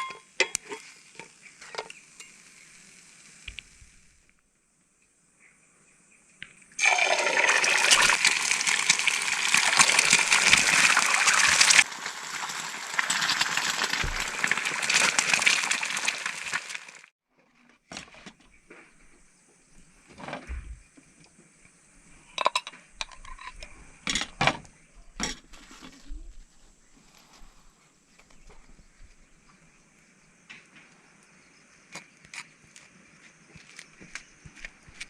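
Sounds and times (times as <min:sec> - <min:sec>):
water pouring: 0:06.8 - 0:17.1.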